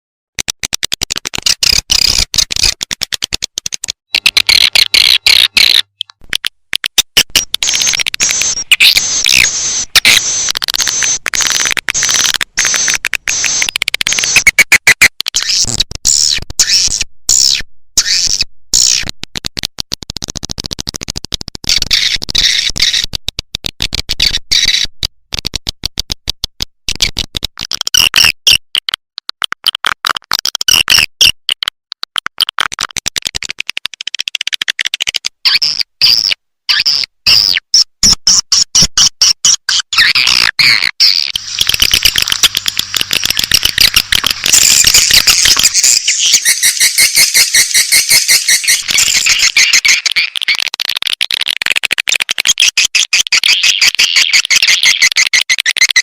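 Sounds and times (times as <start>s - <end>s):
swiftlets twittering: 41.4s - 50.4s.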